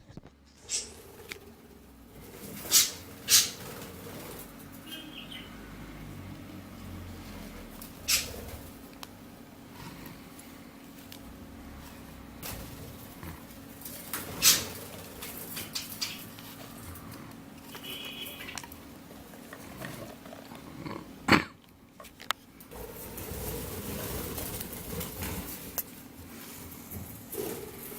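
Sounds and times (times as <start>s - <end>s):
chicks scratching and tapping: 12.4s - 20.6s.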